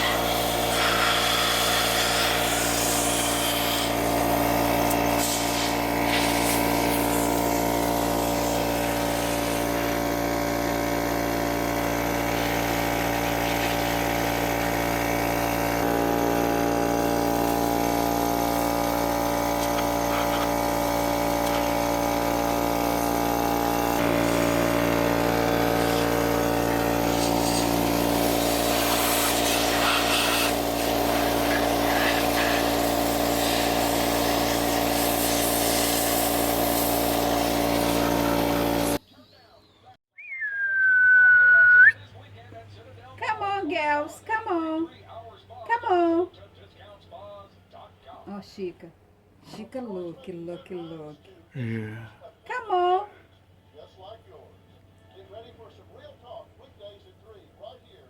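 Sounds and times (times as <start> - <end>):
machine motor humming: 0.0 - 35.0.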